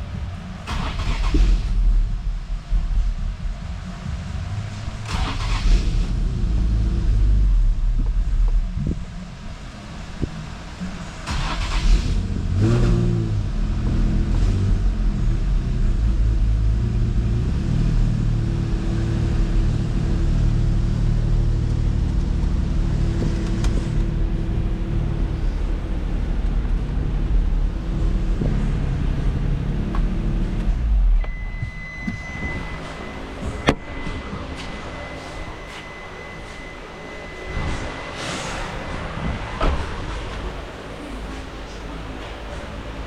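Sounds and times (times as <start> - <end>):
car engine idling: 0.0 - 43.0
steady high-pitched tone: 30.9 - 42.0.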